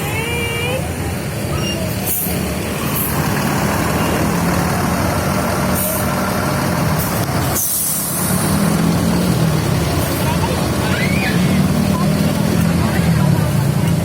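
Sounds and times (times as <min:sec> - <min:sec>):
bus diesel engine running: 0:00.0 - 0:14.0
air brake hisses: 0:07.5 - 0:08.4.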